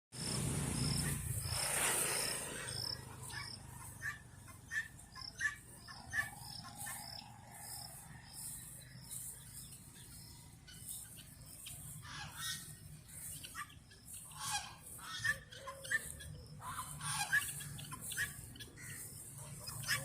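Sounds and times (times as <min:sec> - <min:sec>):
rushing noise: 0:00.2 - 0:03.7
high animal chirp: 0:00.2 - 0:20.0.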